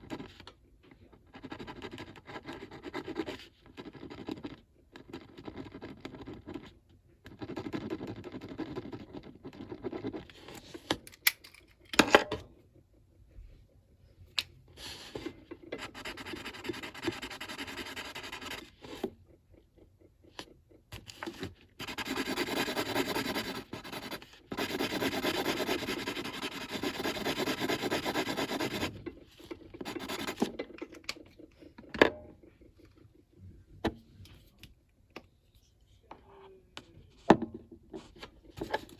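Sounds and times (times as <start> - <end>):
colouring tool scribbling on paper: 15.8 - 20.2, 21.8 - 29.0, 29.8 - 30.5.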